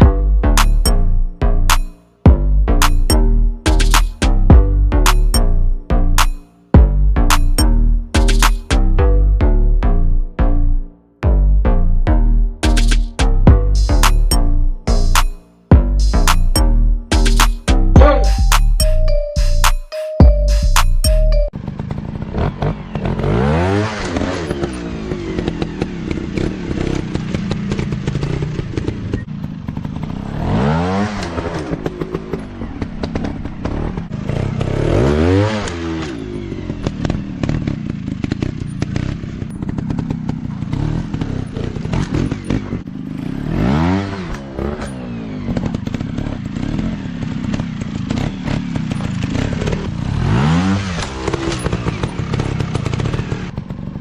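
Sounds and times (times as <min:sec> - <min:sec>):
motocross bike engines revving: 0:21.8 - 0:53.9
bikes clattering over rough ground: 0:44.7 - 0:50.1.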